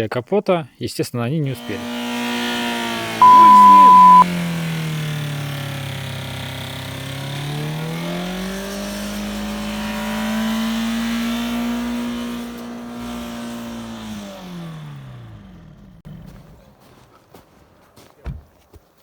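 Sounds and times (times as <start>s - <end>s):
diesel engine at very high revs: 1.6s - 16.4s.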